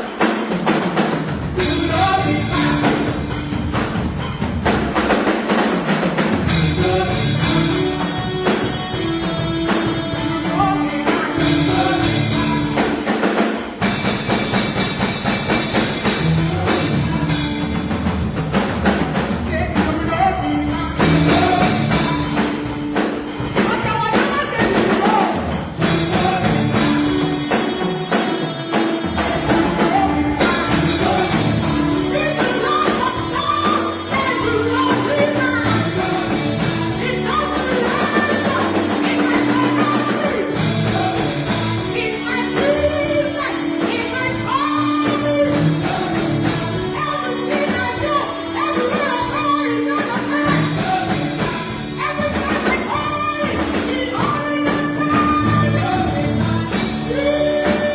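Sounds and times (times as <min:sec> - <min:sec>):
drum kit: 0:00.0 - 0:57.9
person singing: 0:01.5 - 0:05.5, 0:06.5 - 0:18.0, 0:19.4 - 0:57.9.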